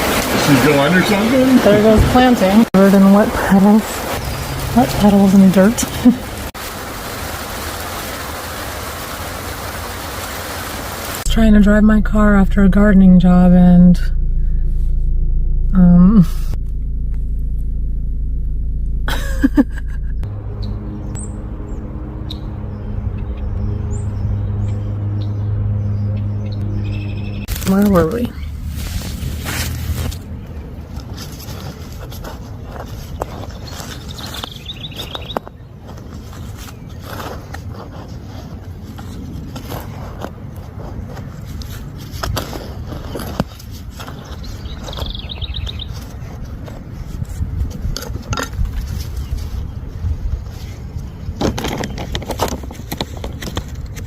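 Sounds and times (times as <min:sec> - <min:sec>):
car running inside cabin: 0:00.0 - 0:06.6, 0:11.2 - 0:35.5
low hum: 0:11.0 - 0:32.8
short noise: 0:11.2 - 0:27.7
high bird chirps: 0:20.1 - 0:27.6, 0:33.6 - 0:35.7, 0:44.3 - 0:46.0
bird trilling: 0:23.2 - 0:27.5, 0:44.6 - 0:45.9
digging in garden soil: 0:27.5 - 0:49.8.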